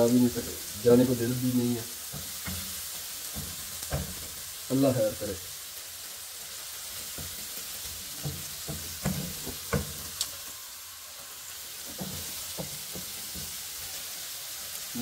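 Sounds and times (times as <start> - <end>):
food sizzling in a pot: 0.0 - 15.0
spoon knocking against a pot: 8.2 - 10.0.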